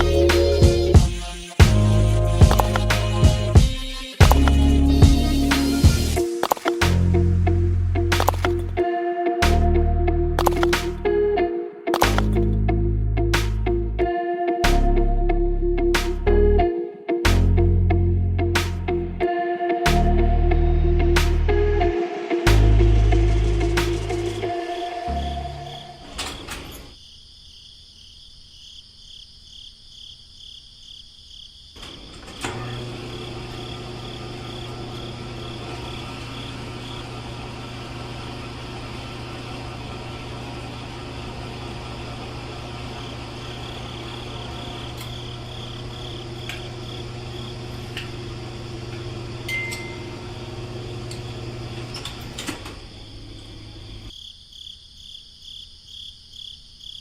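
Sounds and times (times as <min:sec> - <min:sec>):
small motor humming: 0:01.9 - 0:03.6, 0:04.2 - 0:06.9, 0:08.2 - 0:08.8, 0:32.2 - 0:54.1
crickets chirping: 0:24.4 - 0:37.5, 0:40.4 - 0:57.0.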